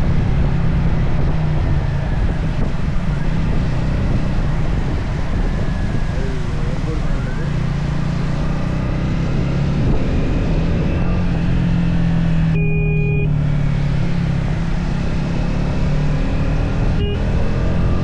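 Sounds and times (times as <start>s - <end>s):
wind and road noise: 0.0s - 18.0s
brief electronic tone: 12.5s - 13.4s, 17.0s - 18.0s.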